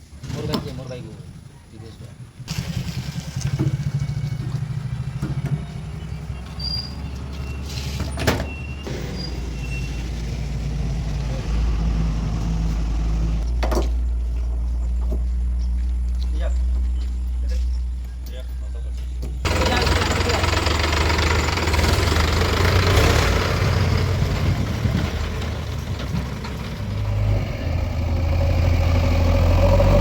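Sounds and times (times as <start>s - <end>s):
heavy diesel engine running: 16.8s - 30.0s.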